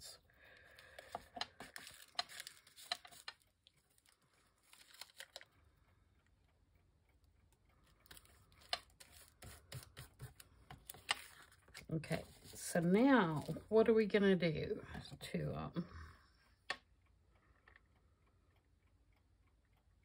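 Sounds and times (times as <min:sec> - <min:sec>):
paper and card rustling: 0:00.8 - 0:05.5, 0:08.0 - 0:13.7.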